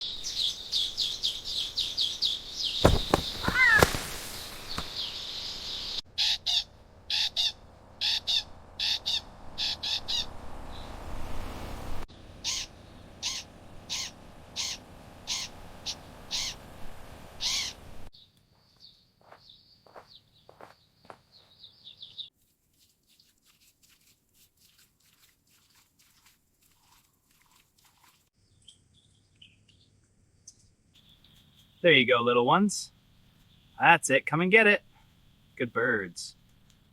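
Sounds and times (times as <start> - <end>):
birds chirping: 0.0 - 10.9, 17.4 - 22.3
loud sharp knocks: 2.8 - 4.9.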